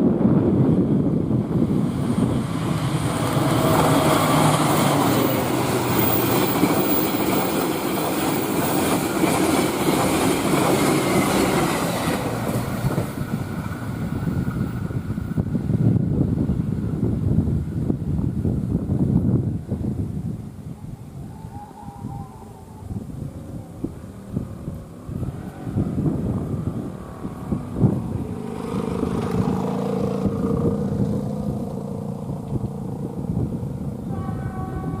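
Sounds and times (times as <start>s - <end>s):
train wheels rushing on rails: 0.8s - 17.0s
wheels clacking over rail joints: 3.0s - 14.4s.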